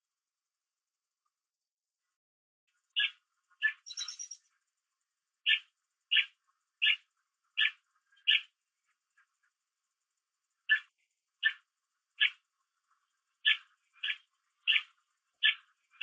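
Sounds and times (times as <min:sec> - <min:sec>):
bird twittering: 0:02.9 - 0:04.4, 0:05.4 - 0:08.5, 0:10.7 - 0:11.6, 0:12.2 - 0:12.4, 0:13.4 - 0:16.0.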